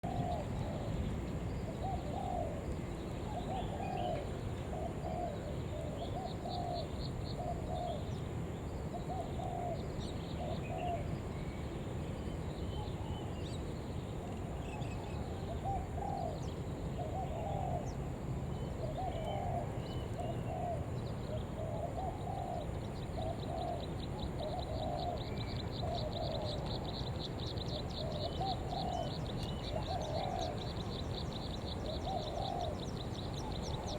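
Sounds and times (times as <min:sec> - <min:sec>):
dove cooing: 0:03.3 - 0:06.8, 0:15.6 - 0:16.4, 0:18.8 - 0:27.0, 0:28.0 - 0:30.7, 0:31.9 - 0:33.9.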